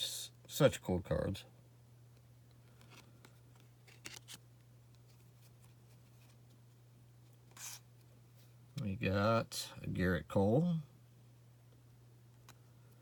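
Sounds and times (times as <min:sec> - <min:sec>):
low steady hum: 0:00.0 - 0:13.0
trading cards rustling and clicking: 0:02.6 - 0:04.4
card sliding swish: 0:07.5 - 0:07.9.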